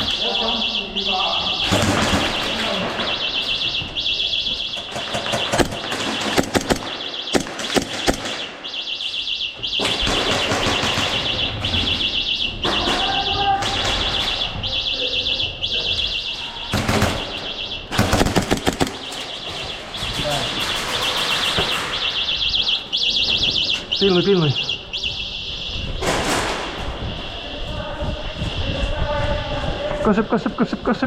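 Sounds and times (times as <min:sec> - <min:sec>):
airsoft guns firing: 0:00.0 - 0:15.0, 0:15.7 - 0:23.5, 0:25.9 - 0:27.0.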